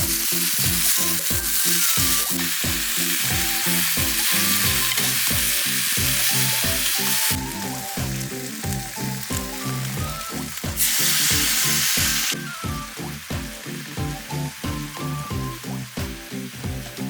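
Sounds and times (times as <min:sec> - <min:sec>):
background music: 0:00.0 - 0:17.0
food sizzling in a frying pan: 0:00.0 - 0:17.0.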